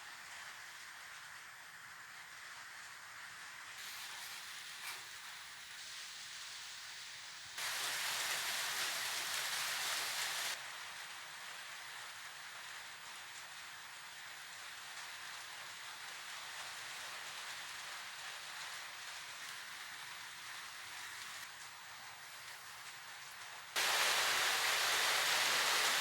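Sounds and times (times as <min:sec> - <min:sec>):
steady hissing noise: 0:00.0 - 0:26.0
louder even hiss: 0:03.7 - 0:11.0, 0:23.8 - 0:26.0.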